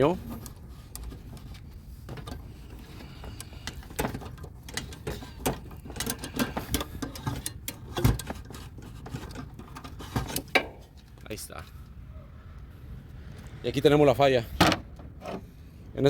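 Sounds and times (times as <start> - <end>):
metal clicks knocks and scraping: 0.0 - 11.2.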